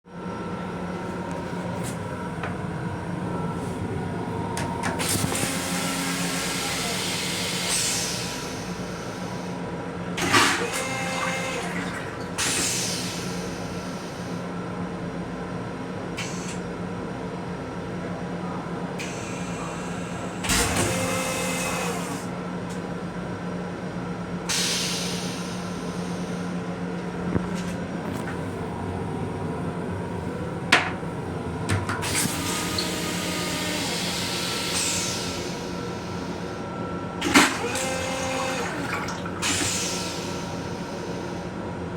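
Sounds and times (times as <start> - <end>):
train running hum: 21.9 - 41.9.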